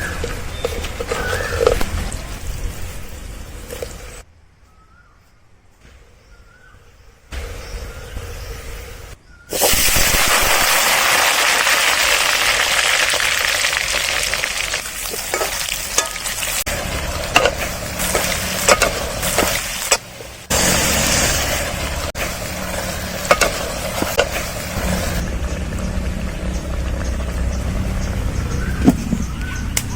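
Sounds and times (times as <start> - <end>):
utensil scraping cooking vessel: 0.0 - 4.2, 13.0 - 25.2
food sizzling in hot oil: 9.5 - 25.2.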